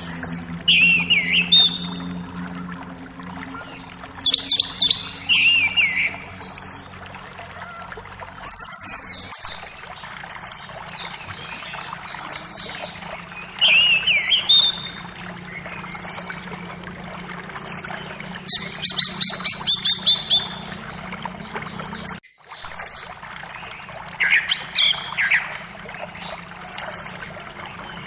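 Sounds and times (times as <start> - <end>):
high bird call notes: 0.0 - 2.7
birds singing: 0.0 - 28.0
faint creek murmur: 0.0 - 28.0.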